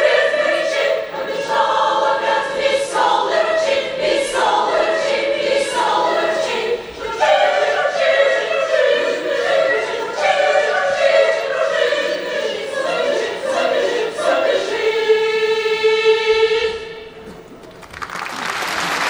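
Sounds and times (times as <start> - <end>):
choir singing: 0.0 - 19.0.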